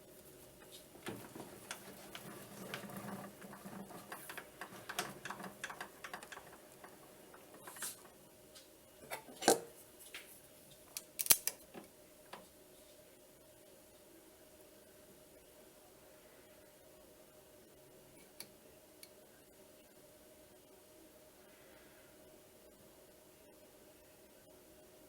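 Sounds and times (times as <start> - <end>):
metal parts and tools clicking: 1.0 - 8.2, 11.0 - 11.6.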